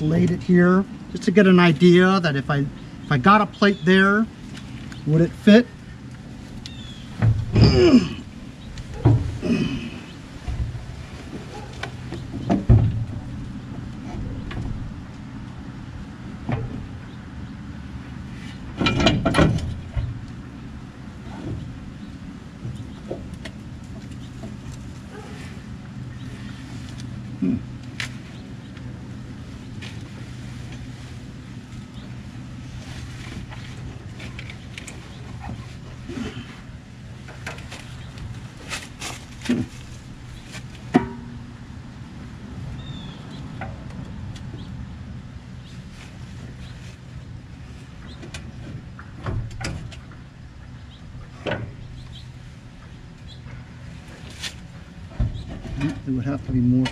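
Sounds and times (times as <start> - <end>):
low hum: 4.0 - 56.9
metal clanking and scraping: 18.4 - 20.3, 32.9 - 41.6, 53.3 - 56.9
metallic clanks from engine parts: 18.4 - 20.4, 40.6 - 41.7, 48.0 - 56.9.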